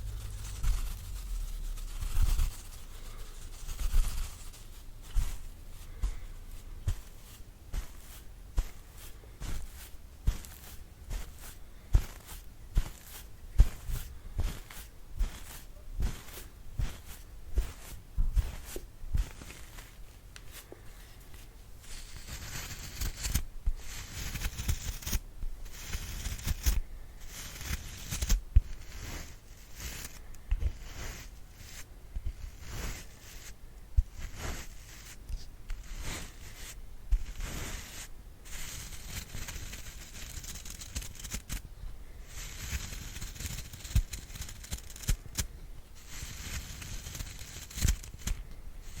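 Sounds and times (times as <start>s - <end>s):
hands rustling: 0.0s - 22.0s
brush bristles scratchy strokes: 0.0s - 49.0s
soft low handling thumps: 13.5s - 19.4s.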